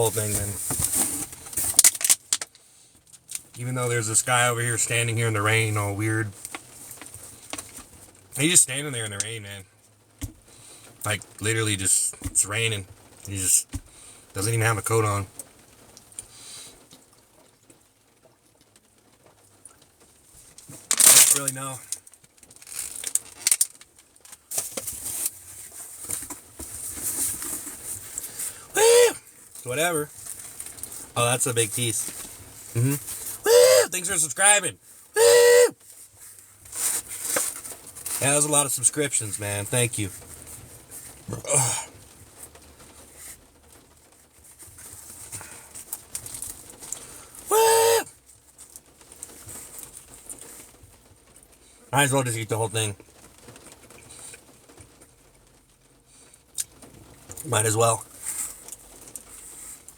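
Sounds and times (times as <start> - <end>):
man shouting woo: 28.8 - 29.2, 33.4 - 34.4, 35.2 - 35.8, 47.5 - 48.1
hissy noise: 35.2 - 35.8.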